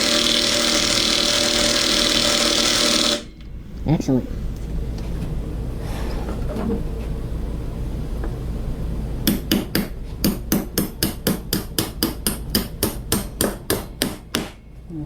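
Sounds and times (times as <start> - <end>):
hammer striking a bolt: 9.2 - 14.6.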